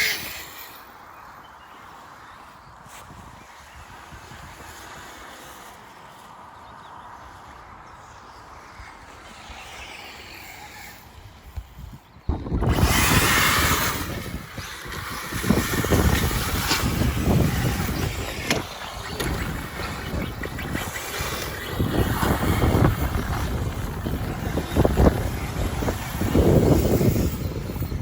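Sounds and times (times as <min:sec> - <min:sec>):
radio-controlled cars driving: 0:00.0 - 0:28.0.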